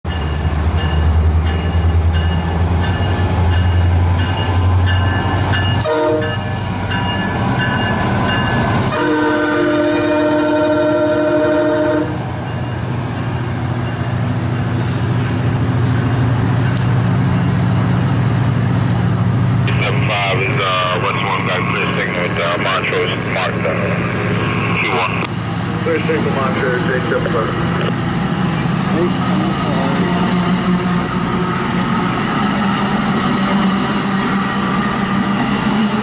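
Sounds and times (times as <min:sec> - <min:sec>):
diesel locomotive engine droning: 0:00.0 - 0:36.0
coaches rumbling on rails: 0:00.1 - 0:36.0
train horn: 0:05.8 - 0:06.5, 0:08.8 - 0:12.3.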